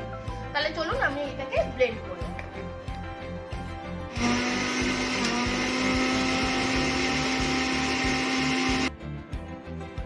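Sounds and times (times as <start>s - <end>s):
electric mixer grinder running: 4.1s - 8.9s.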